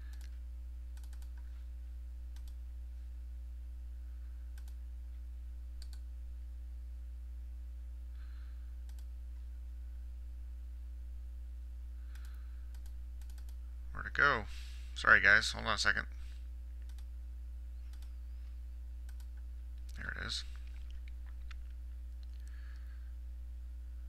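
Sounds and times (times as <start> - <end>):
computer mouse clicking: 0.0 - 0.4, 1.0 - 1.5, 2.3 - 2.6, 4.6 - 4.8, 5.8 - 6.0, 8.9 - 9.1, 12.1 - 13.6, 16.8 - 17.1, 17.9 - 18.2, 19.1 - 19.4
low electrical hum: 0.0 - 24.0.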